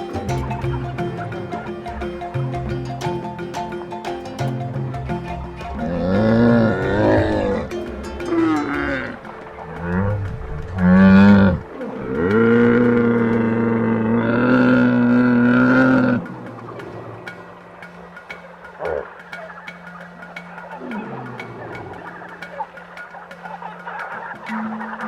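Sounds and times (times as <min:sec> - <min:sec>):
large animal calling: 0:00.0 - 0:17.4.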